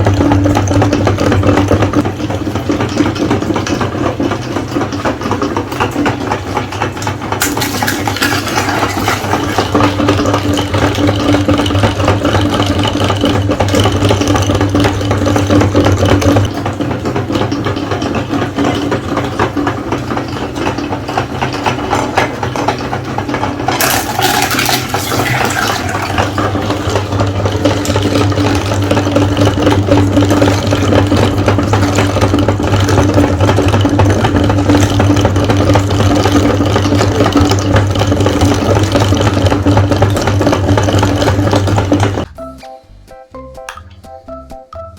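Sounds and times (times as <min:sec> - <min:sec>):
electric meat grinder running: 0:00.0 - 0:42.4.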